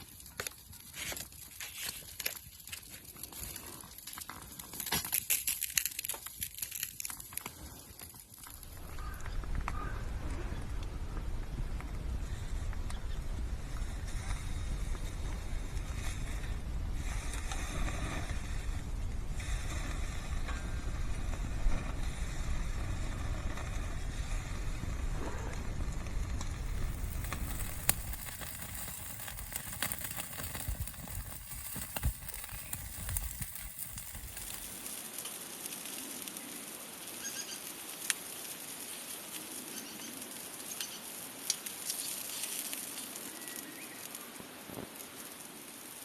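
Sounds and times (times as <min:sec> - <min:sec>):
small crackles and clicks: 0:00.0 - 0:46.0
wind buffeting microphone: 0:08.6 - 0:34.9.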